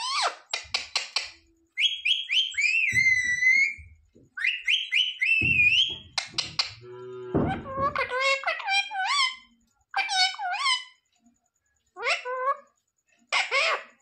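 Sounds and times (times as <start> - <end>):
parrot whistling: 1.8 - 9.4.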